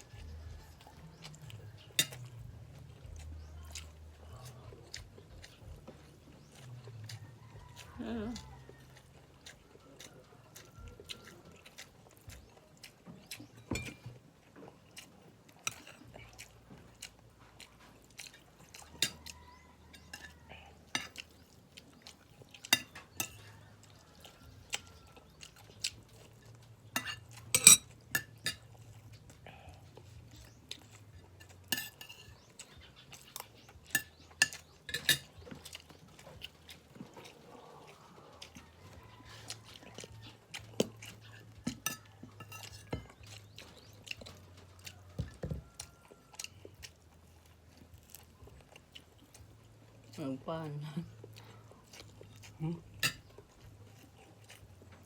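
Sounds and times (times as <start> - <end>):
chewing: 0.0 - 55.0
cutlery clinking on a plate: 1.9 - 2.3, 13.6 - 14.2, 18.7 - 21.2, 22.6 - 23.5, 27.0 - 28.7, 31.4 - 32.5, 33.9 - 35.7, 41.4 - 43.2, 53.0 - 53.3.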